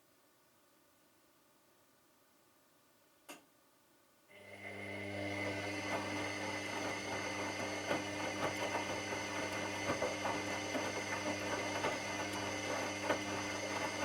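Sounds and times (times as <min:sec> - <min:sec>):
washing machine motor humming: 0:04.3 - 0:14.0.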